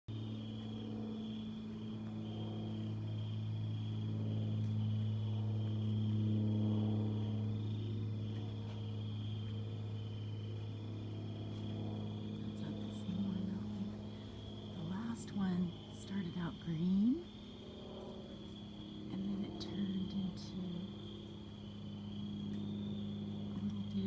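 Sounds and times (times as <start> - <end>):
insects chirping: 0.1 - 24.0
steady low hum: 0.1 - 24.0.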